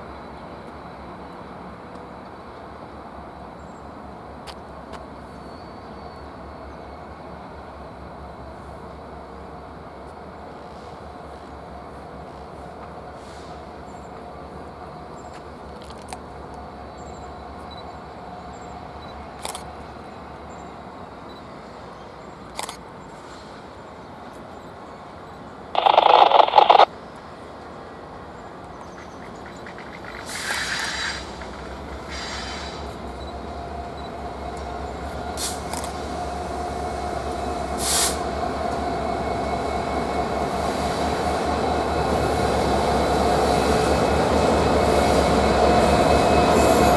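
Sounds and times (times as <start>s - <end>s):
train rumble: 23.5s - 46.9s.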